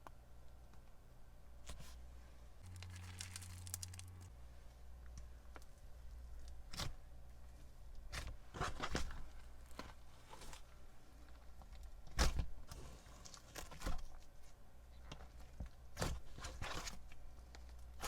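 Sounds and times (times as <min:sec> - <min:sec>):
slime squelching by hand: 0:02.6 - 0:04.3.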